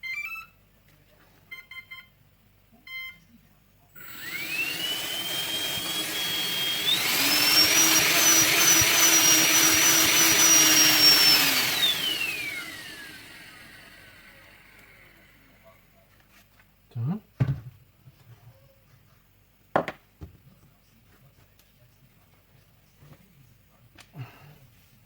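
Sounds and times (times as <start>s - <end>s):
electric motor whine: 4.0s - 15.6s.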